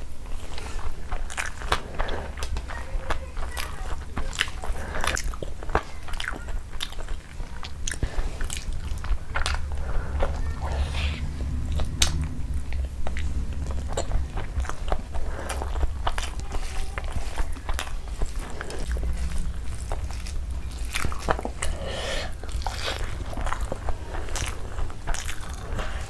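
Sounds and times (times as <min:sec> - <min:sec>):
chewing rice: 0:00.0 - 0:26.0
low steady hum: 0:00.0 - 0:26.0
fingers squishing rice: 0:13.7 - 0:26.0.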